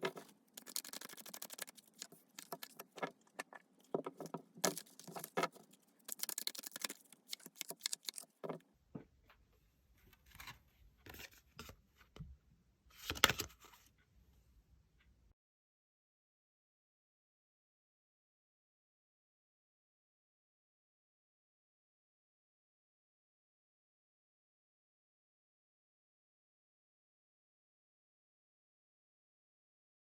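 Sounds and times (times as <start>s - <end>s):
cards being shuffled: 0.0s - 3.4s, 4.0s - 8.6s, 13.0s - 13.5s.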